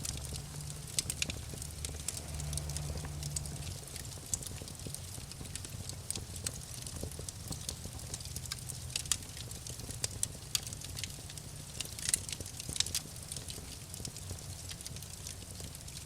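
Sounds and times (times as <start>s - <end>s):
steady low rumble: 0.0s - 9.7s
wood fire crackling and popping: 0.0s - 16.0s.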